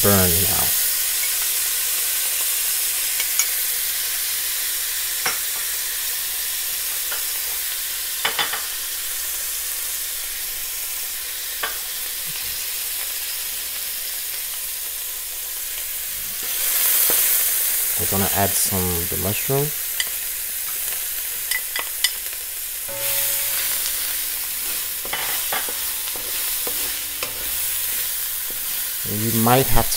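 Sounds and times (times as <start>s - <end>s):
seasoning paste sizzling in oil: 0.0s - 29.9s.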